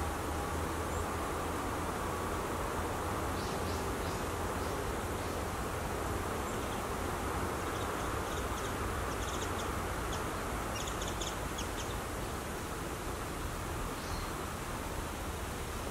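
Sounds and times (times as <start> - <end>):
steady outdoor hiss: 0.0 - 15.9
birds chirping: 7.6 - 12.0.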